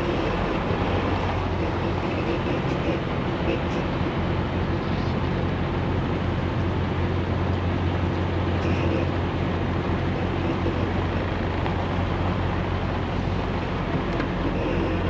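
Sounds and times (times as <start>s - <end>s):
road noise: 0.0s - 15.0s
truck engine drone: 0.0s - 15.0s.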